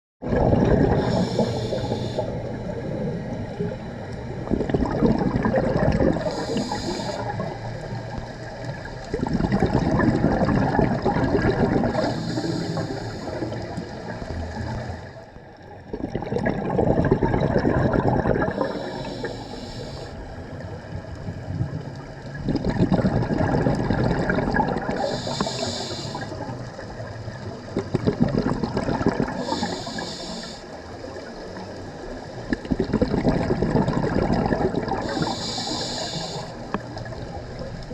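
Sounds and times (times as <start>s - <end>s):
exhaled bubbles burbling: 0.2s - 30.4s, 31.0s - 37.9s
regulator hiss on inhale: 0.9s - 2.6s, 6.2s - 8.2s, 11.9s - 13.8s, 18.5s - 20.4s, 25.0s - 26.5s, 29.4s - 30.8s, 35.0s - 37.1s.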